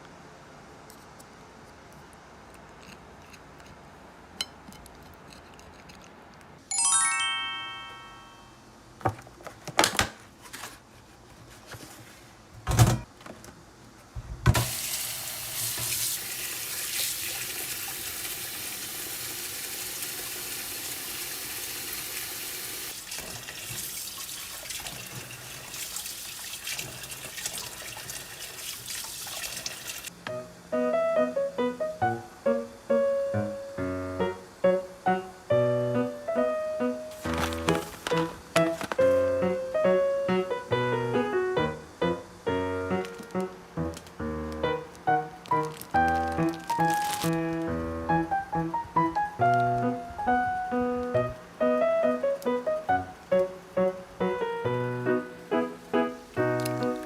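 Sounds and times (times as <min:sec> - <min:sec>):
tap running water into sink: 0:14.5 - 0:30.1.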